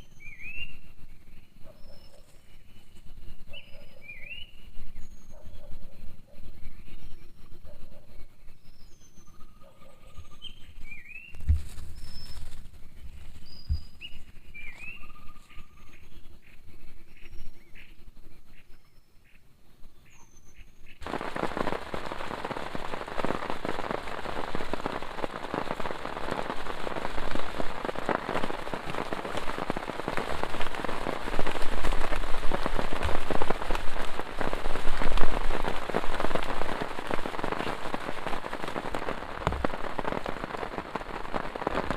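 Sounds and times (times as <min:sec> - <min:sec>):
birds chirping and whistling: 0:00.0 - 0:19.3, 0:20.0 - 0:21.0
heavy rain: 0:21.0 - 0:41.9
low thumps: 0:39.4 - 0:40.4.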